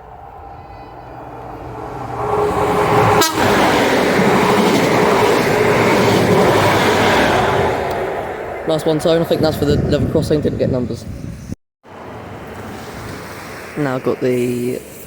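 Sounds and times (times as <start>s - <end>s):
train passing at speed: 0.0s - 15.0s
train horn: 2.3s - 3.8s.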